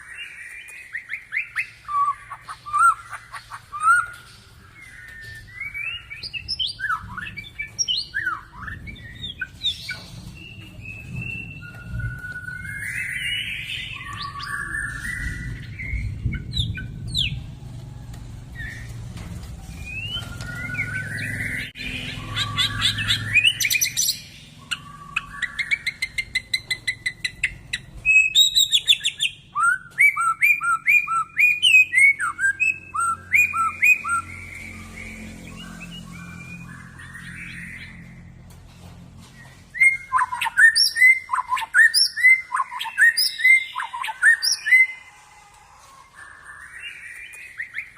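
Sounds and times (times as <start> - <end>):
songbird whistling and trilling: 0.0 - 17.4, 19.7 - 38.2, 39.4 - 45.1, 46.1 - 47.9.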